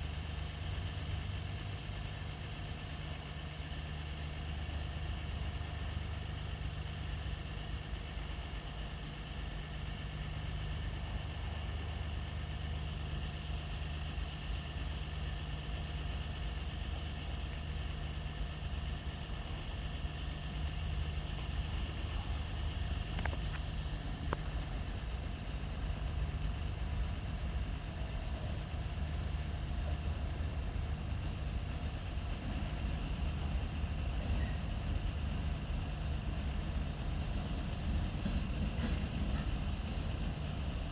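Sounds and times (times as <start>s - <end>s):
diesel locomotive idling: 0.0s - 40.9s.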